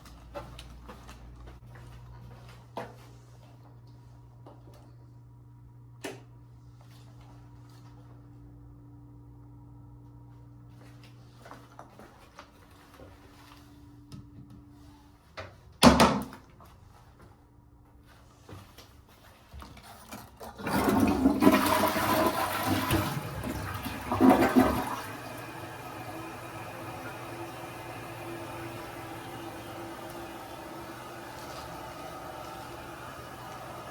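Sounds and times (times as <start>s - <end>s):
toilet flushing: 20.2s - 33.9s.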